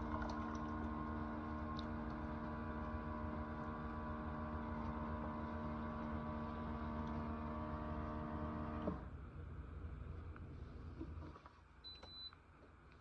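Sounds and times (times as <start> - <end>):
coffee maker motor humming: 0.0 - 9.1.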